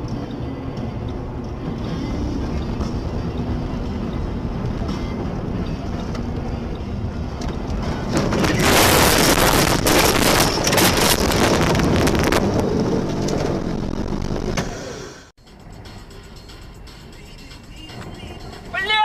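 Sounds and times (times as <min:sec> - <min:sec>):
car road and wind noise: 0:00.0 - 0:19.0
loud rushing noise with crackles: 0:07.7 - 0:14.8.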